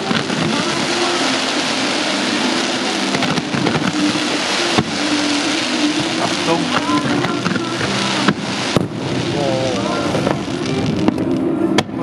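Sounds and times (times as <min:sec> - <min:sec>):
fireworks crackling and hissing: 0:00.0 - 0:12.0
firework bang: 0:03.1 - 0:12.0.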